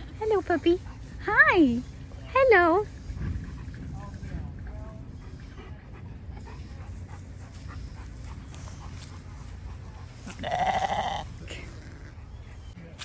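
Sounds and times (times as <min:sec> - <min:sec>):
sheep bleating: 0:10.3 - 0:12.1.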